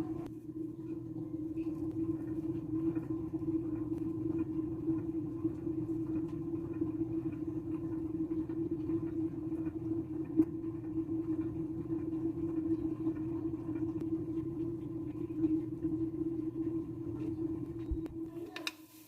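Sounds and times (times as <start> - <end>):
low machine hum: 0.0 - 18.6.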